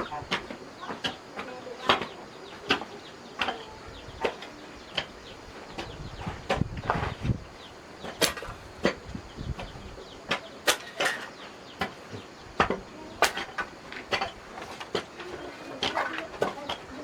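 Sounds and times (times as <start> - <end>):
sharp wooden knocks and clacks: 8.0 - 16.9.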